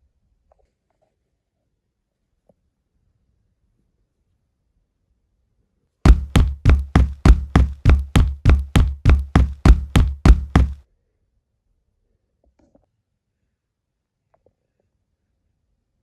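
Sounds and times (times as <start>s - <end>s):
sharp knocks: 6.1s - 10.8s.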